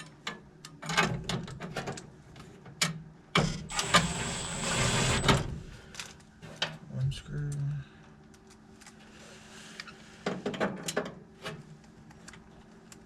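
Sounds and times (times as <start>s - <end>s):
power drill whining: 3.7s - 5.7s.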